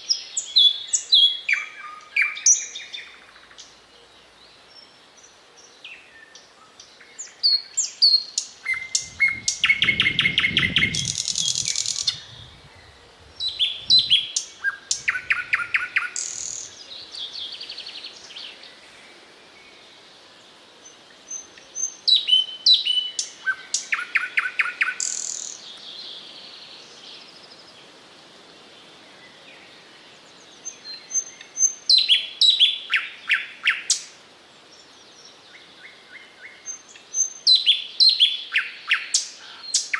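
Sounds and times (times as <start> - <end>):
nightingale singing: 0.0 - 18.9, 20.8 - 27.8, 29.1 - 39.9.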